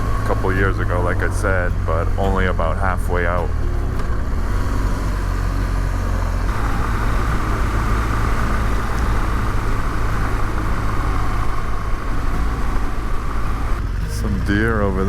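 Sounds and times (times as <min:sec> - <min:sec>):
gravel road noise: 0:00.0 - 0:15.0
motorcycle engine rumble: 0:00.0 - 0:15.0
high hiss: 0:04.4 - 0:13.8.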